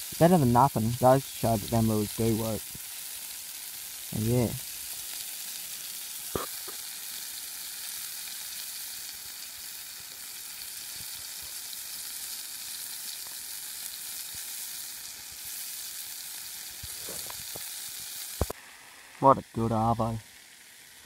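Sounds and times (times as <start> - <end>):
fish sizzling in oil: 0.0 - 21.0.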